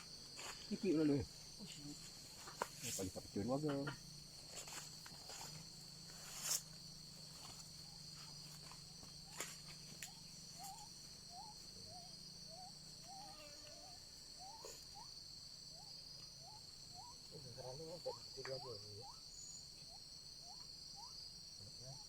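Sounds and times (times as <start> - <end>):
insects shrilling: 0.0 - 22.0.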